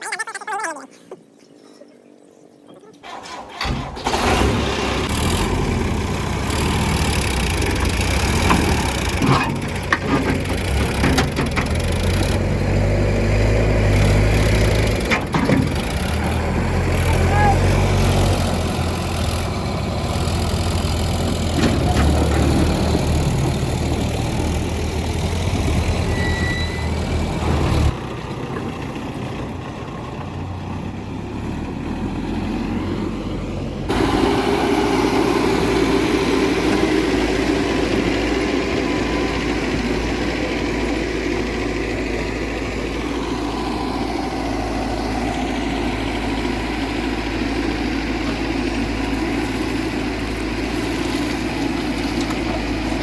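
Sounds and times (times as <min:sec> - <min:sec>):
diesel machinery engines running: 0:03.0 - 0:53.0.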